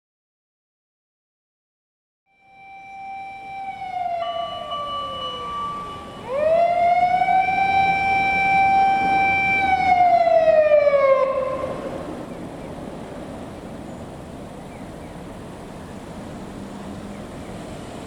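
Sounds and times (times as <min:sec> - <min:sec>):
higher steady siren tone: 0:02.3 - 0:12.4
fire engine siren wailing: 0:02.3 - 0:13.6.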